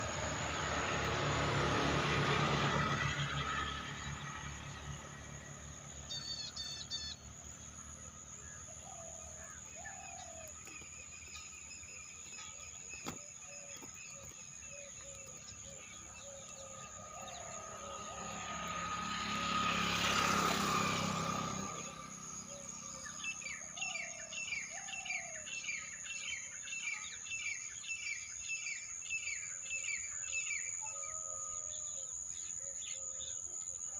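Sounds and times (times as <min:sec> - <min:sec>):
vehicle passing by: 0:00.0 - 0:26.1
birds chirping and calling: 0:06.0 - 0:18.8, 0:21.7 - 0:33.8.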